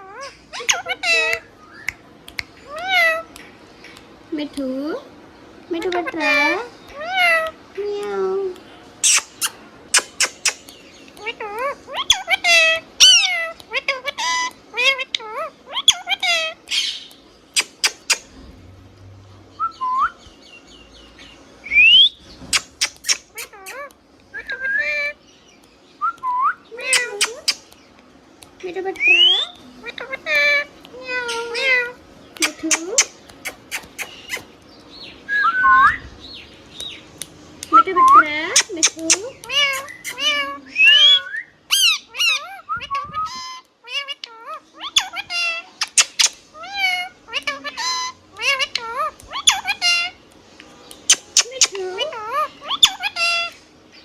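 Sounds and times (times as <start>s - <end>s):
parrot chirps squawks and whistles: 0.0s - 1.9s, 9.0s - 18.4s, 21.7s - 25.2s, 26.1s - 27.7s, 29.0s - 34.6s, 38.0s - 50.2s, 51.0s - 53.6s
parrot clicks: 6.9s - 14.5s, 16.2s - 18.3s, 22.5s - 23.9s, 26.8s - 27.8s, 32.3s - 34.5s, 38.5s - 40.3s, 45.8s - 46.4s, 50.3s - 51.8s
parrot whistling and chirping: 9.0s - 10.7s, 24.4s - 25.1s, 31.0s - 34.5s, 35.3s - 36.2s, 38.0s - 43.6s.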